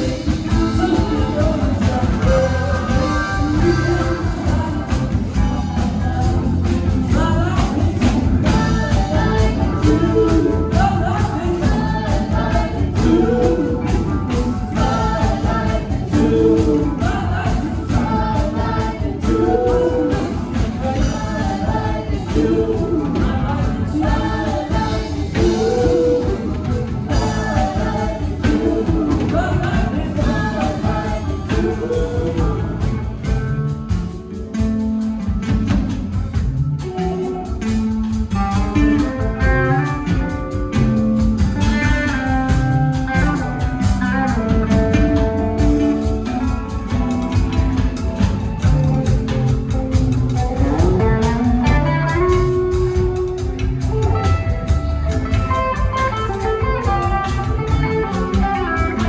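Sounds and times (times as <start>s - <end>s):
person singing: 0.0s - 33.4s
rock band playing: 0.0s - 59.0s.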